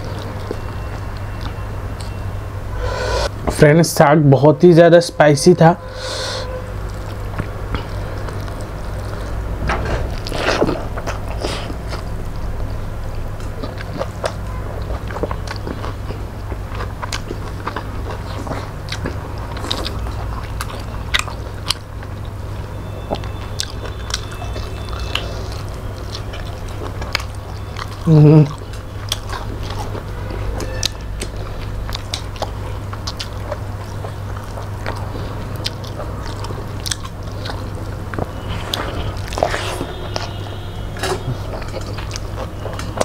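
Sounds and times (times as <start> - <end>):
low hum: 0.0 - 3.6
chewing and mouth sounds: 6.8 - 9.4, 10.0 - 40.4, 41.2 - 43.0.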